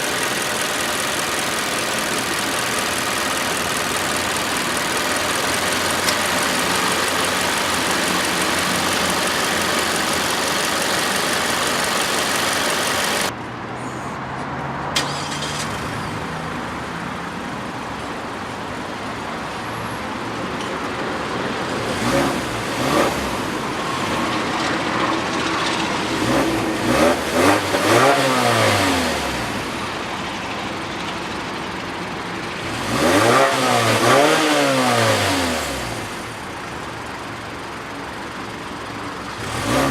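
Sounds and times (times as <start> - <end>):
car engine revving: 0.0 - 13.3, 21.8 - 30.1, 32.6 - 36.5, 39.3 - 39.9.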